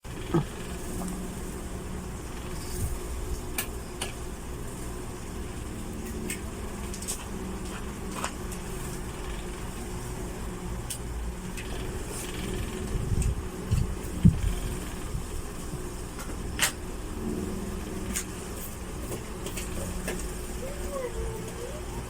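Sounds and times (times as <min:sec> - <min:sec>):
electric fan motor hum: 0:00.0 - 0:22.0
fan clicking: 0:05.6 - 0:16.9, 0:17.8 - 0:21.7.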